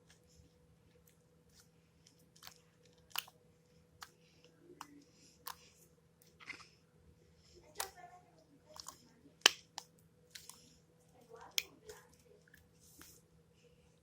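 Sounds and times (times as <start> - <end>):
faint steady hum: 0.0 - 14.0
slime popping and crackling: 2.2 - 3.4, 8.8 - 10.6.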